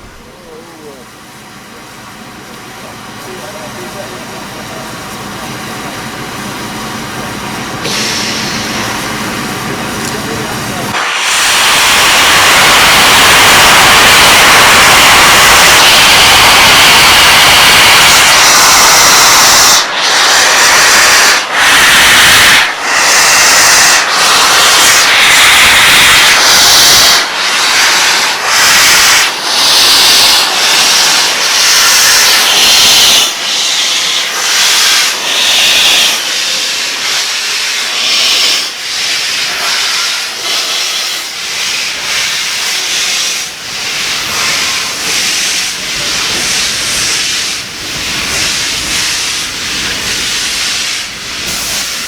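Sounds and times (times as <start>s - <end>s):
steam locomotive rushing hiss: 0.0s - 52.0s.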